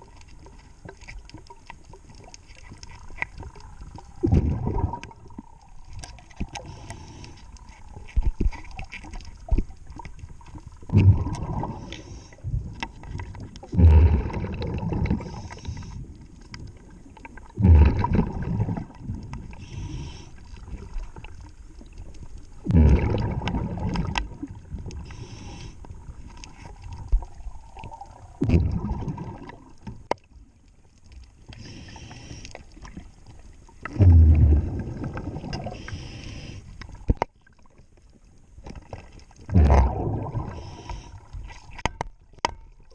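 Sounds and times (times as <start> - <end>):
bubbles rushing underwater: 4.2 - 5.4, 10.9 - 11.9, 13.6 - 15.5, 17.5 - 19.6, 22.6 - 25.0, 27.3 - 29.8, 33.8 - 35.9, 39.5 - 40.8
low hiss: 13.6 - 28.4, 30.5 - 37.1.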